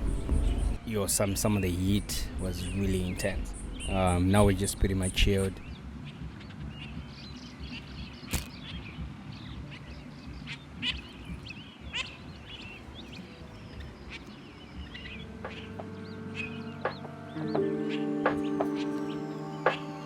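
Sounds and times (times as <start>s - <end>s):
birds chirping: 0.0s - 20.0s
music: 0.0s - 20.0s
sharp click: 8.3s - 8.6s.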